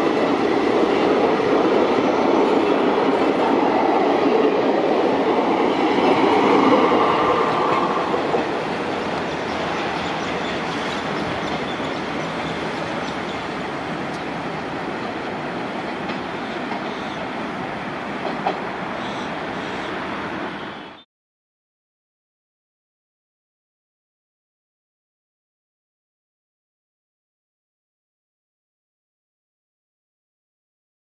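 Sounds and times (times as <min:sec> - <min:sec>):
train wheels on rails: 0:00.0 - 0:20.8.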